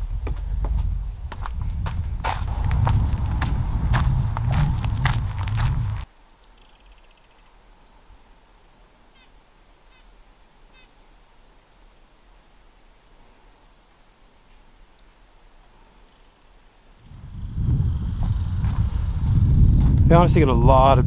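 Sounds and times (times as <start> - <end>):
quiet woodland ambience: 0.0 - 19.9
faint birdsong: 4.6 - 19.8.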